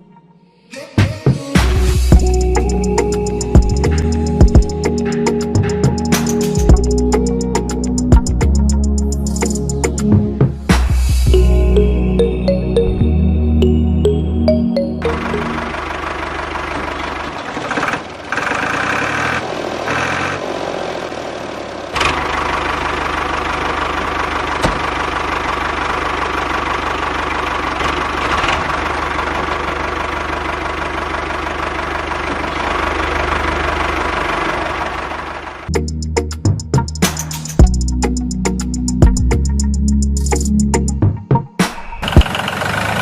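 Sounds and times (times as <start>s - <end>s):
small engine rattling: 15.0s - 35.7s, 42.0s - 43.0s.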